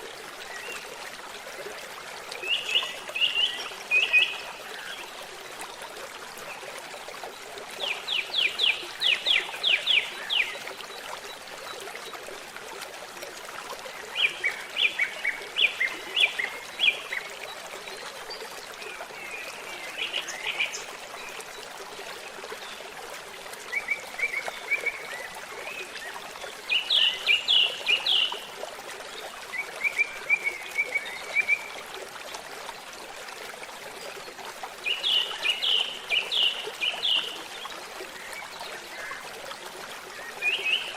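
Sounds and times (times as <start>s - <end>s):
babbling stream: 0.0s - 40.9s.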